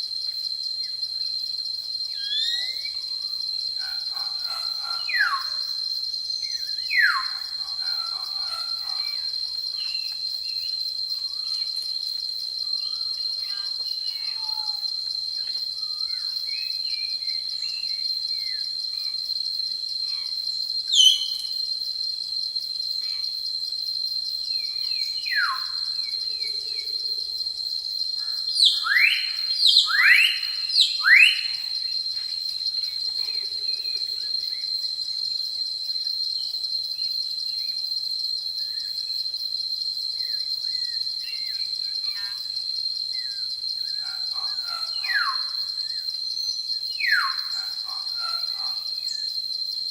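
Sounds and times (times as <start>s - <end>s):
high insect trill: 0.0s - 49.9s
birds whistling: 21.0s - 21.4s.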